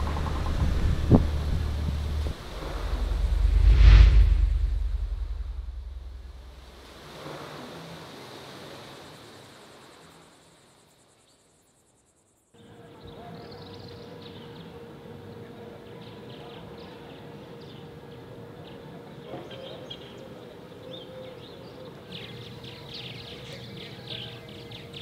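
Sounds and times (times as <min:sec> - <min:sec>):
steady low hum: 0:00.0 - 0:07.3
flock of small birds chirping: 0:12.7 - 0:25.0.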